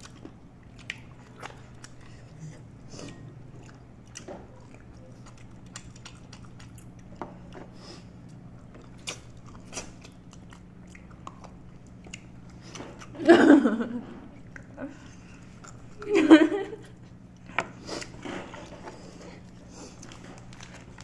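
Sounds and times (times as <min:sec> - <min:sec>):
people chewing food: 0:00.0 - 0:21.0
steady low hum: 0:00.0 - 0:21.0.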